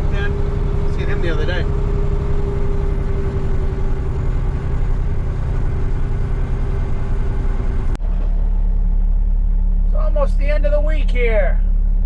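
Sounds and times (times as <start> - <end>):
deep steady engine hum: 0.0 - 12.0
truck engine rumbling: 0.0 - 12.0.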